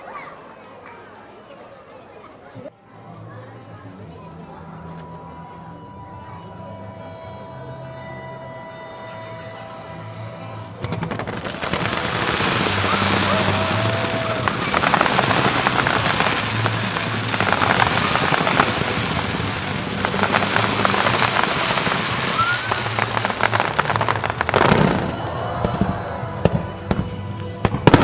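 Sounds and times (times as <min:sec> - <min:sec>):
firework whistles: 0:10.8 - 0:26.3
firework bangs: 0:10.8 - 0:28.0
fireworks crackling: 0:10.8 - 0:28.0.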